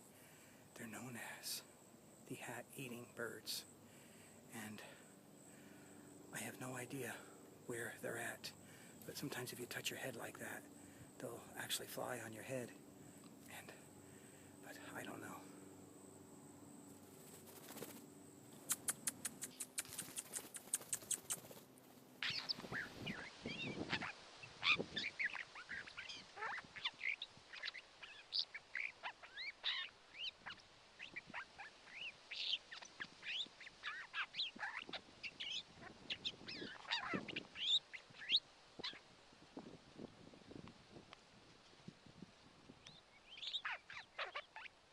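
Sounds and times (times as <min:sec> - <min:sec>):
many birds calling harshly: 0:13.5 - 0:15.6, 0:22.2 - 0:39.1, 0:42.9 - 0:44.8
rapid sharp clicks: 0:18.6 - 0:21.6.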